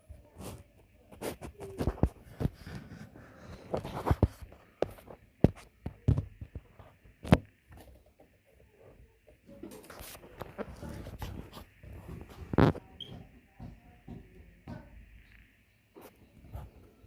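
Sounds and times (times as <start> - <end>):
knocks taps and thuds: 11.8 - 15.2.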